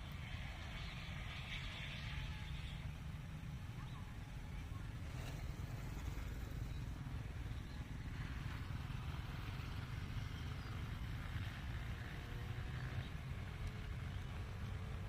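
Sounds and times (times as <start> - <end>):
faint indistinct voices: 0.2 - 6.8.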